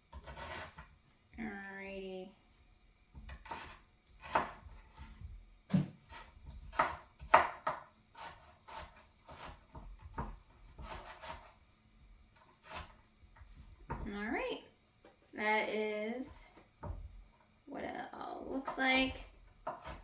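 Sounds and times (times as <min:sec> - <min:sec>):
knife chopping on cutting board: 0:00.1 - 0:00.9, 0:03.1 - 0:11.6, 0:12.4 - 0:14.1, 0:18.7 - 0:20.0.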